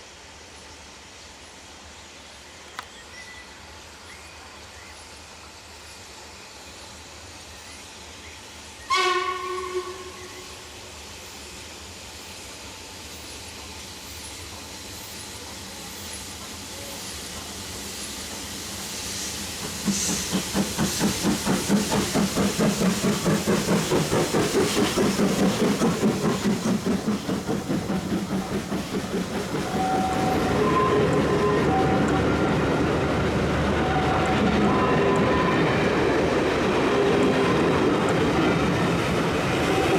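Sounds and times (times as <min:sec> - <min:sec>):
steam engine exhaust chuffing: 0:16.3 - 0:31.4.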